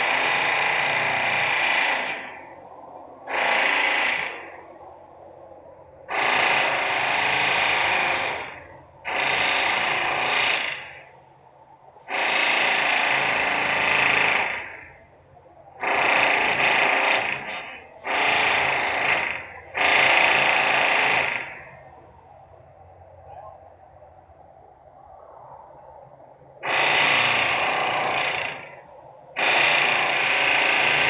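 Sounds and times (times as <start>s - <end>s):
industrial power tool bursts: 0.0s - 2.6s, 3.3s - 4.6s, 6.1s - 11.1s, 12.1s - 15.1s, 15.8s - 21.9s, 26.6s - 31.0s.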